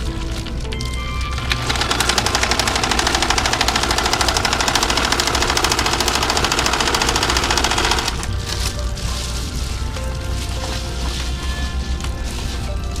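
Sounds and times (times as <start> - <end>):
sewing machine stitching: 1.3 - 8.3.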